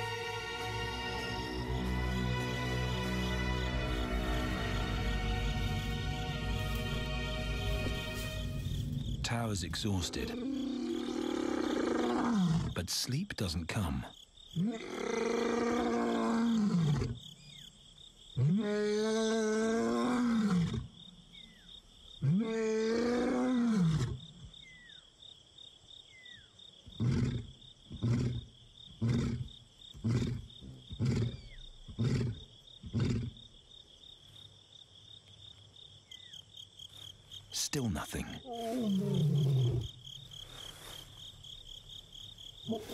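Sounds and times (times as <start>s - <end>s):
crickets chirring: 0.0s - 42.9s
lion roaring and grunting: 10.0s - 12.8s, 14.6s - 17.2s, 18.4s - 20.9s, 22.2s - 24.2s, 27.0s - 33.4s, 38.4s - 40.0s, 42.6s - 42.9s.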